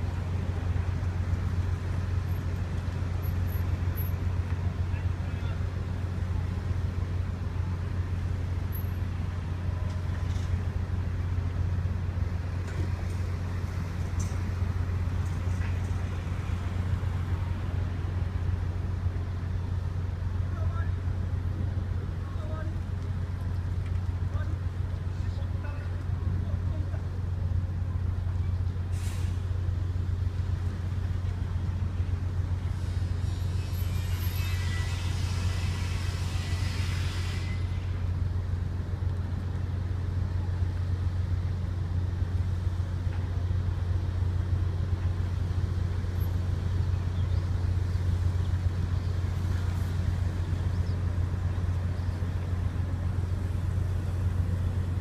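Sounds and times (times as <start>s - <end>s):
ferry engine drone: 0.0s - 55.0s
brief hiss: 28.9s - 29.6s, 32.7s - 38.1s.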